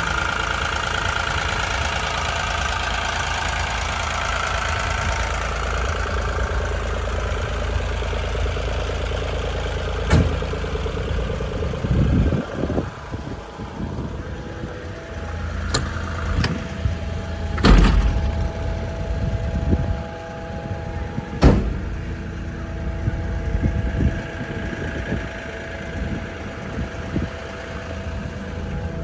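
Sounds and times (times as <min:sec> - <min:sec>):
excavator diesel engine idling: 0:00.0 - 0:29.0
sharp knocks: 0:21.4 - 0:22.0.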